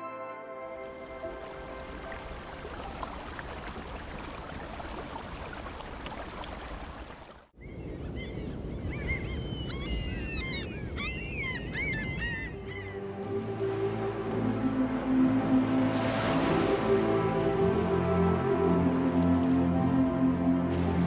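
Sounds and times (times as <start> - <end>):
seabirds calling: 7.6 - 13.2
sea surf: 7.7 - 21.0.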